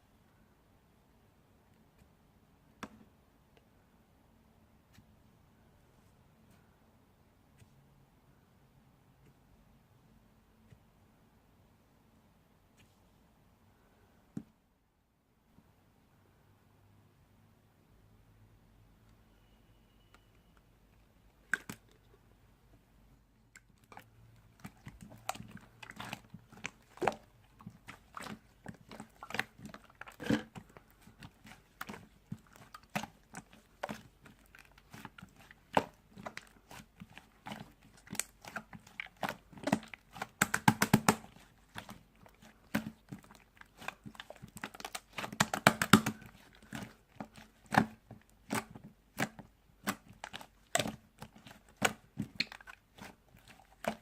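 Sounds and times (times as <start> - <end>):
crunching and crinkling: 23.6 - 54.0.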